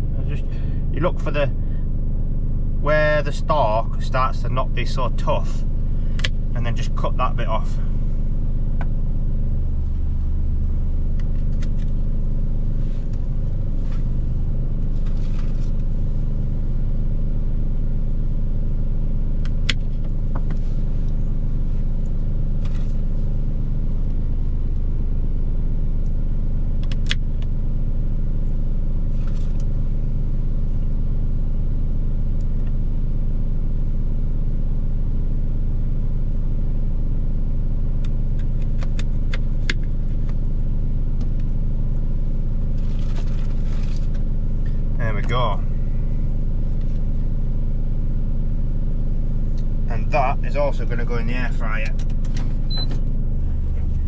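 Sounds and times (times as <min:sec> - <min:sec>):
vehicle engine idling: 0:00.0 - 0:54.0.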